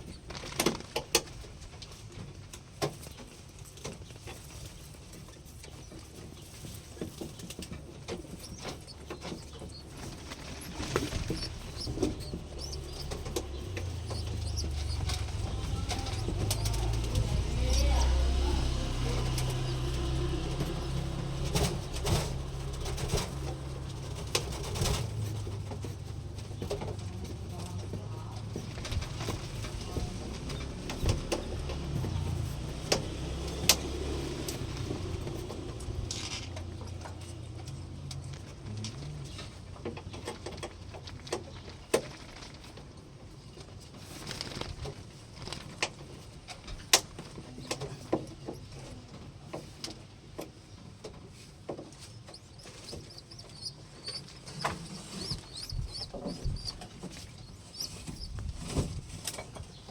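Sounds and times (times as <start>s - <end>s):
shuffling: 4.4s - 30.8s
pigeons cooing: 8.1s - 26.7s, 52.1s - 58.9s
beak clicks: 8.3s - 17.2s, 52.1s - 58.4s
sharp clicks: 52.1s - 58.7s.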